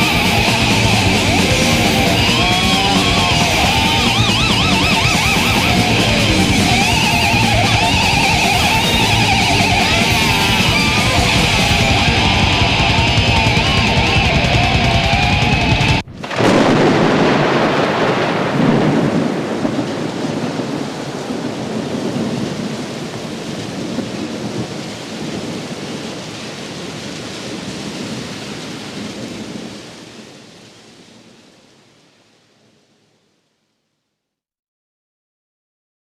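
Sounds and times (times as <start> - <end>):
rumbling thunder: 0.0 - 26.0
heavy rain rushing: 0.0 - 32.8.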